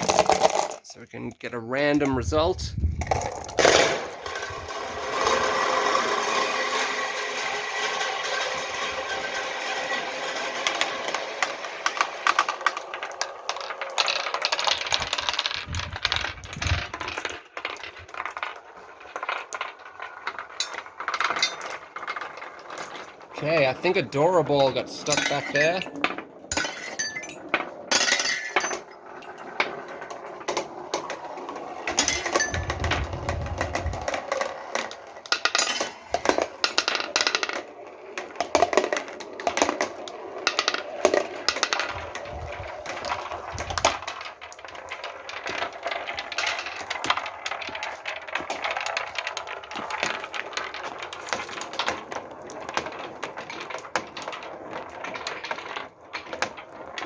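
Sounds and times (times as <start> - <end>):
marbles rolling and clacking: 0.0 - 57.0
low rumble: 2.2 - 3.6.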